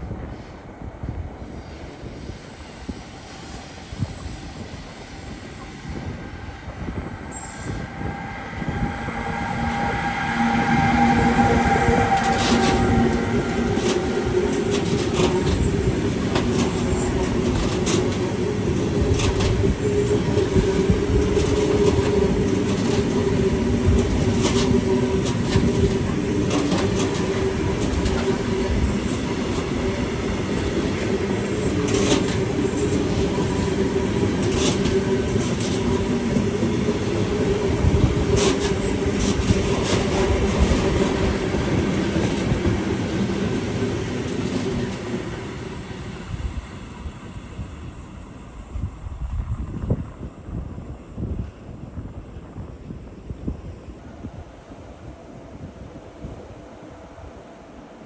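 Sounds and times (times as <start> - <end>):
train rumbling past: 0.0 - 58.0
wheels clacking over rail joints: 11.0 - 45.3.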